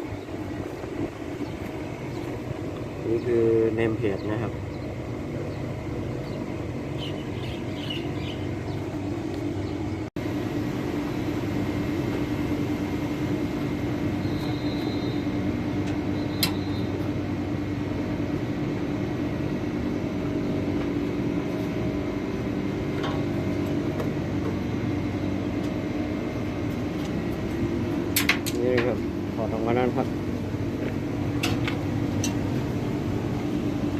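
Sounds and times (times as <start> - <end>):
steady mechanical hum: 0.0 - 33.9.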